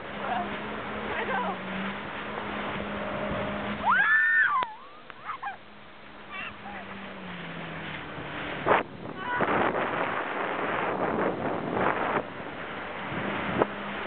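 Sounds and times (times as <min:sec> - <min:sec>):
jet ski engine idling: 0:00.0 - 0:14.0
rush of wind and water: 0:00.0 - 0:14.0.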